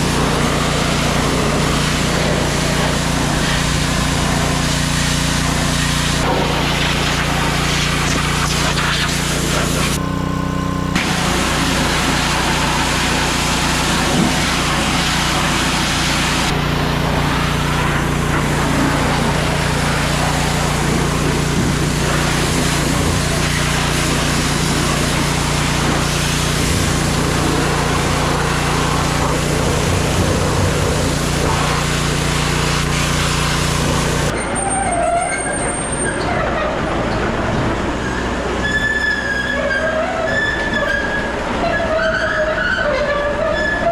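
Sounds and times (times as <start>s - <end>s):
diesel engine running under load: 0.0s - 43.9s
wavering metallic squeals: 34.3s - 37.2s, 38.0s - 43.9s.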